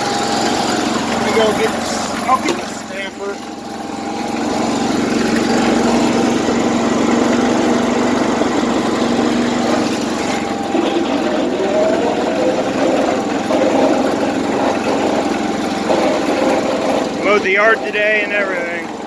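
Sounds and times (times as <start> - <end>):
riding mower engine running: 0.0 - 19.0.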